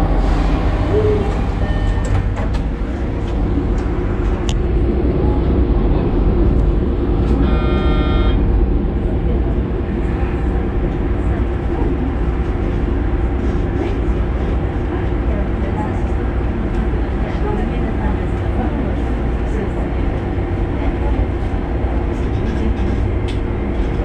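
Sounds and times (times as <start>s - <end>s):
railcar engine rumble and hum: 0.0s - 24.0s
brief tone: 0.9s - 2.2s, 7.3s - 8.4s.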